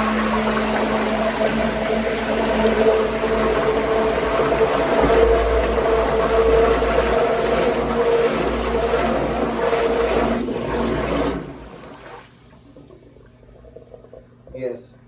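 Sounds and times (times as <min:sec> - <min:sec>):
grinder pump motor humming: 0:00.0 - 0:11.8.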